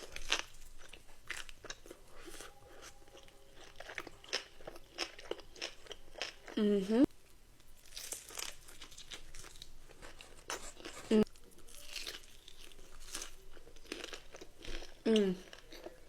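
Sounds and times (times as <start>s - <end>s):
crunchy chewing of fried food: 0.0s - 6.6s, 7.6s - 16.0s
person humming: 6.6s - 7.1s, 15.1s - 15.4s.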